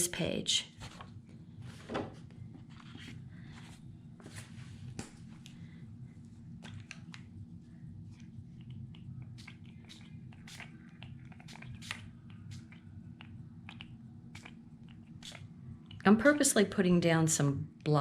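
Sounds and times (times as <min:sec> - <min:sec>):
spray bottle spritzing: 0:09.3 - 0:12.8.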